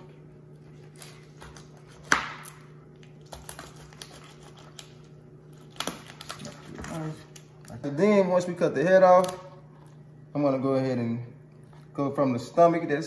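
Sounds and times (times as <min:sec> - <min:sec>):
steady low hum: 0:00.0 - 0:13.0
knife chopping through fish: 0:00.8 - 0:02.6, 0:03.2 - 0:05.0.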